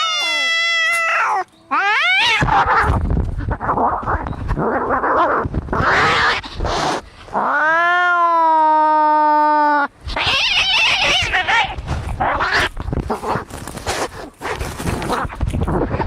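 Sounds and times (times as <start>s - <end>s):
cat yowling: 0.0s - 3.0s, 5.8s - 6.8s, 7.4s - 12.7s.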